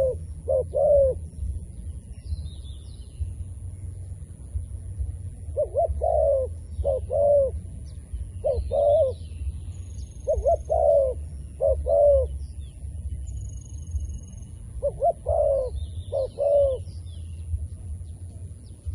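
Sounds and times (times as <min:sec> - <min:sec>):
dove cooing: 0:00.0 - 0:01.6, 0:05.4 - 0:07.8, 0:08.4 - 0:09.4, 0:10.2 - 0:13.2, 0:14.8 - 0:17.1
small birds chirping: 0:00.0 - 0:18.9
steady low rumble: 0:00.0 - 0:18.9.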